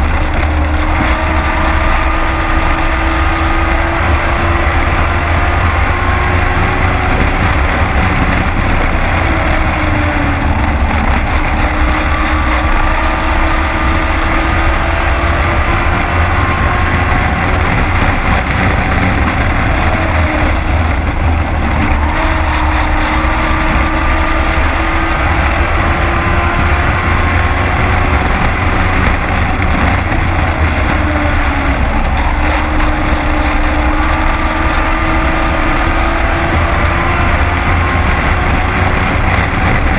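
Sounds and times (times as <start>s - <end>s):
race truck engine at speed: 0.0s - 39.9s.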